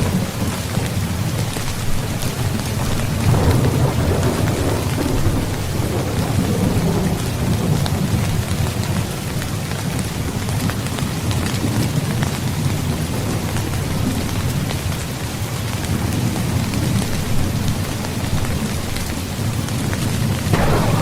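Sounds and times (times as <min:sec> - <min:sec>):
heavy rain falling: 0:00.0 - 0:21.0
distant thunder rumble: 0:02.8 - 0:08.5, 0:20.5 - 0:21.0.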